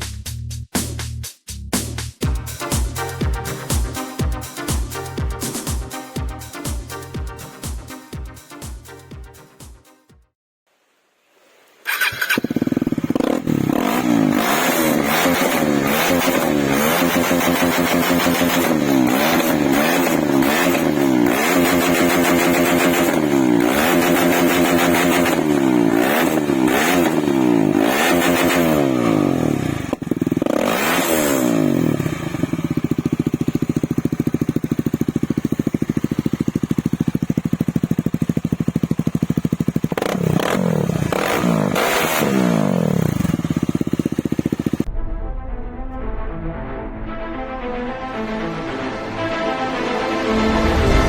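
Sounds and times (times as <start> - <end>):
motorcycle engine revving and idling: 11.9 - 44.9.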